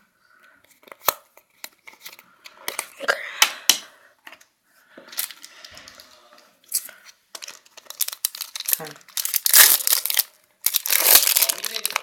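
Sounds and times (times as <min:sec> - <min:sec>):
cards clicking and rustling: 0:06.7 - 0:12.0.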